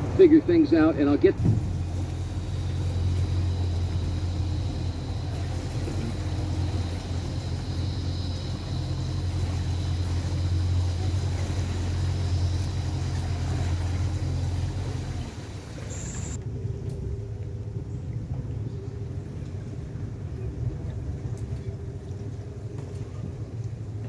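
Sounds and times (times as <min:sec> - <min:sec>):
boat motor humming: 0:00.0 - 0:24.0
faint high whine: 0:00.1 - 0:16.4.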